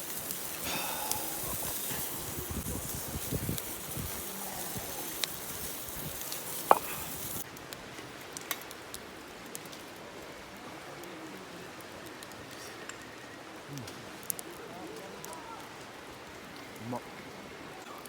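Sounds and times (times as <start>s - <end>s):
steak sizzling: 0.0s - 7.5s
campfire crackling and popping: 0.0s - 18.0s.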